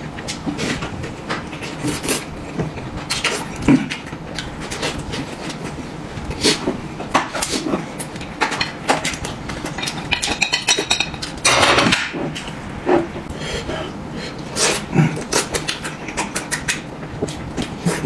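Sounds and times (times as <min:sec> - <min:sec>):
utensils clinking against dishes: 0:08.1 - 0:12.2.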